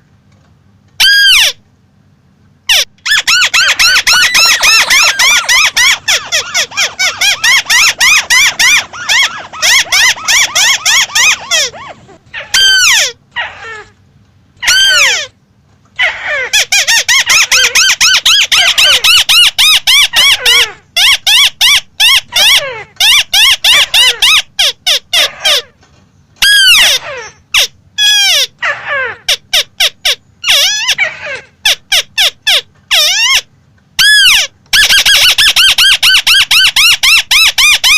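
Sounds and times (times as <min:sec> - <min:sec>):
crake calling: 0:02.7 - 0:13.3.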